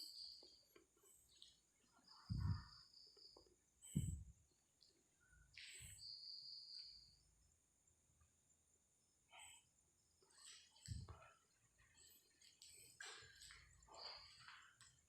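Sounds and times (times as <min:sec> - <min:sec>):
high insect hum: 0:00.0 - 0:15.0
dull low thumps: 0:02.3 - 0:02.7, 0:03.9 - 0:04.3.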